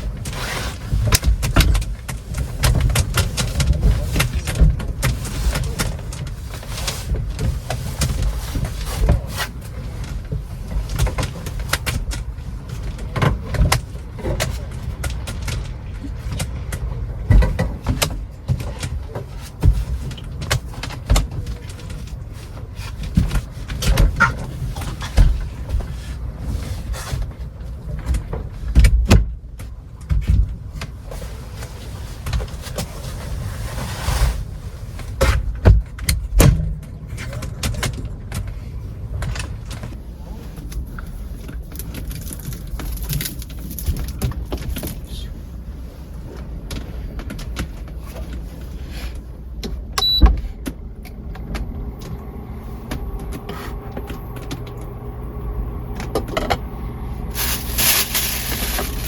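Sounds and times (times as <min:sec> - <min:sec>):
knocks and rattles from truck body: 0:00.0 - 0:33.4, 0:34.9 - 0:40.0.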